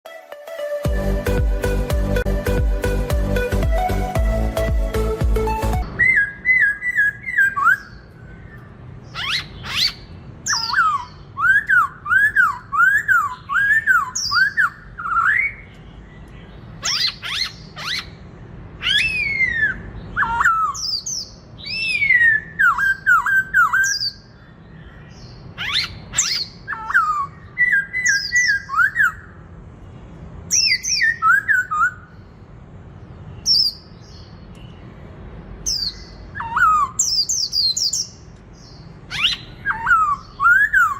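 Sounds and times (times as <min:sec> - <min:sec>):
bird singing whistled notes: 0:00.8 - 0:15.8, 0:18.8 - 0:29.4, 0:30.5 - 0:32.1, 0:35.7 - 0:40.9.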